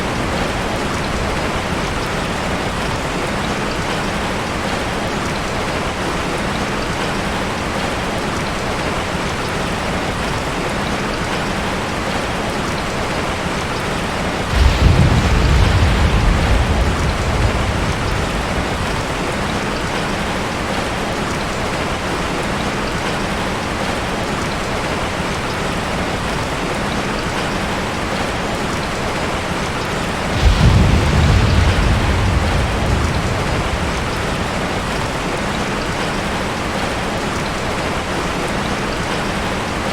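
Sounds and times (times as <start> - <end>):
steady rain: 0.0 - 39.9
low rolls of thunder: 13.8 - 21.8, 30.0 - 36.9.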